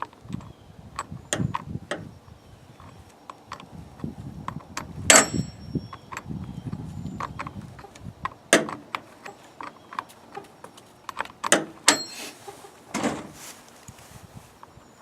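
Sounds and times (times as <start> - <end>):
short scraping rub: 12.0 - 14.6.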